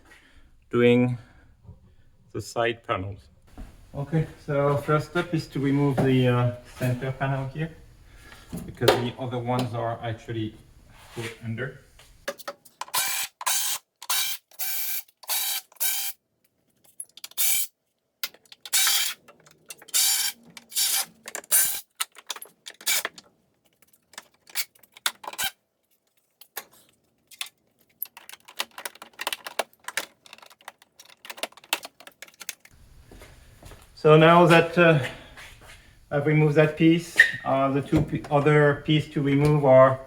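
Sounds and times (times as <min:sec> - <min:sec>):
fasteners clicking and rattling: 0:16.7 - 0:32.8.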